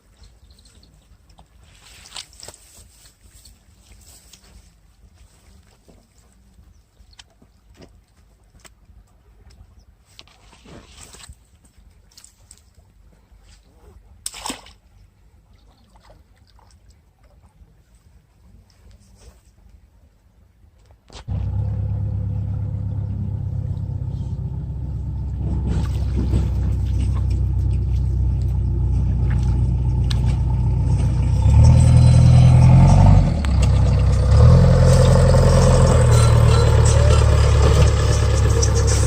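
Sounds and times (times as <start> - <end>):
engine running: 21.3 - 39.0.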